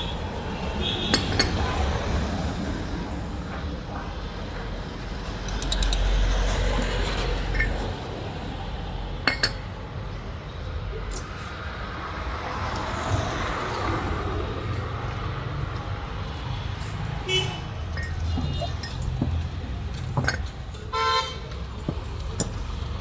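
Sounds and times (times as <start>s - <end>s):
rumble of vehicle traffic: 0.0s - 23.0s
metal tools clinking: 5.4s - 8.0s, 9.2s - 9.6s, 17.9s - 20.9s.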